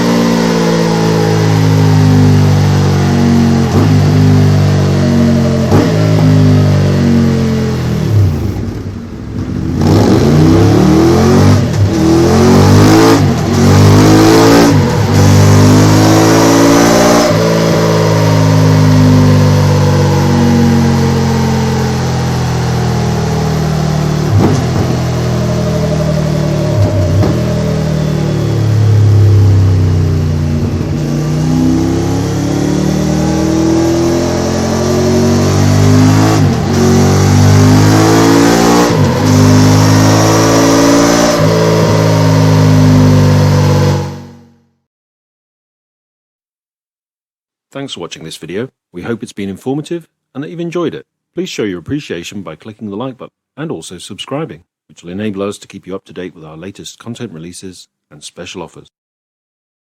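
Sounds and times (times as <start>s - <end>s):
motorcycle engine revving: 0.0s - 44.6s.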